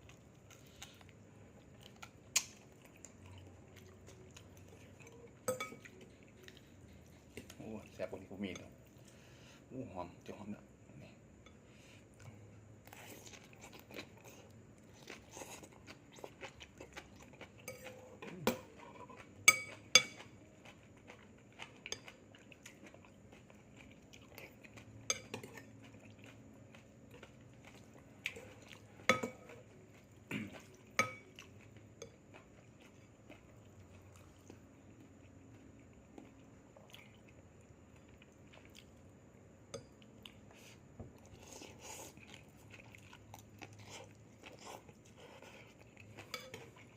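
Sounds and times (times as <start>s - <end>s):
quiet chewing: 0.0s - 9.6s, 11.0s - 46.9s
cutlery clinking against dishes: 5.4s - 6.0s, 19.5s - 20.3s, 29.0s - 29.6s.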